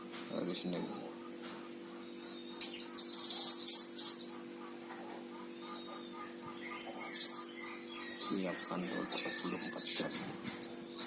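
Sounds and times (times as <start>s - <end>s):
faint steady hum: 0.0s - 11.0s
songbird trilling: 2.0s - 4.5s, 5.5s - 11.0s.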